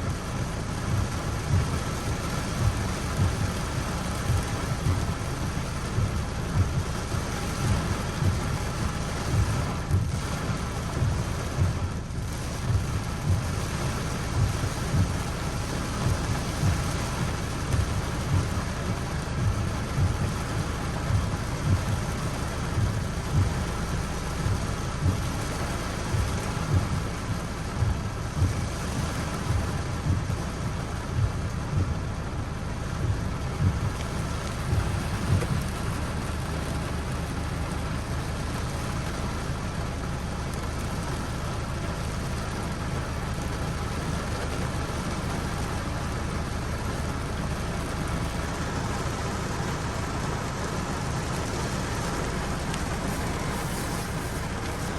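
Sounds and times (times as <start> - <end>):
low thuds: 0.0 - 32.1, 32.9 - 37.8, 48.2 - 54.9
steady rain falling: 0.0 - 54.9.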